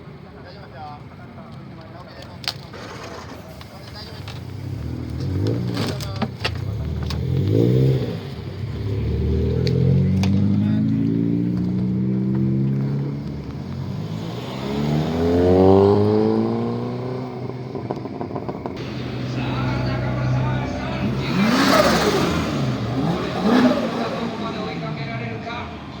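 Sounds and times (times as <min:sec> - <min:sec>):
car engine revving: 0:02.8 - 0:25.5.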